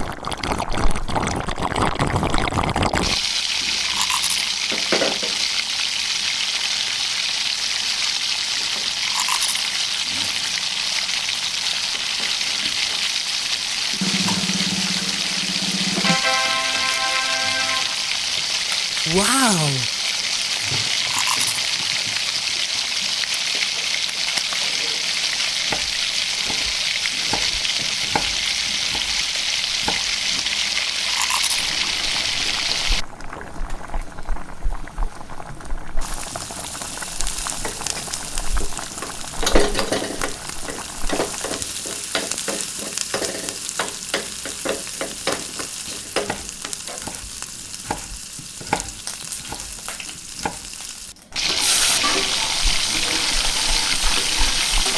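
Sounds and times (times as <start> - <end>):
food sizzling in pan: 3.2 - 19.0, 19.9 - 54.9.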